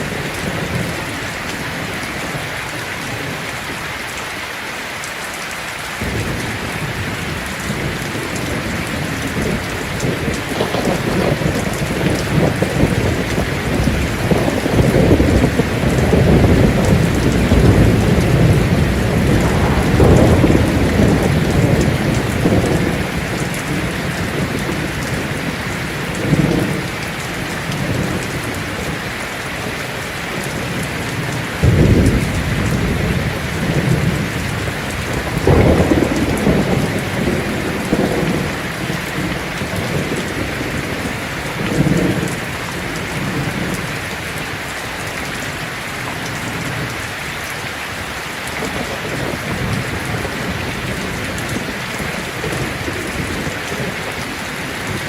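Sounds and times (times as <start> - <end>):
heavy rain on a tin roof: 0.0 - 55.0
sharp thunder claps: 6.0 - 26.9, 30.4 - 43.9
low thunder rumble: 6.0 - 29.2, 30.3 - 44.3, 48.6 - 55.0.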